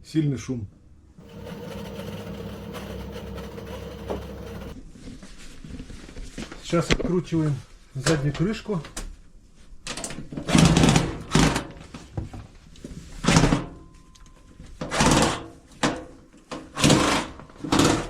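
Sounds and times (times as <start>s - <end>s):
cordless screwdriver running: 1.2s - 4.8s.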